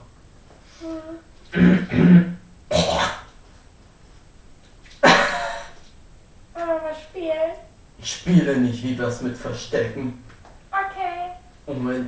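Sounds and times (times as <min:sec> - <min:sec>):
person making throaty vocal sounds: 0:00.8 - 0:03.3.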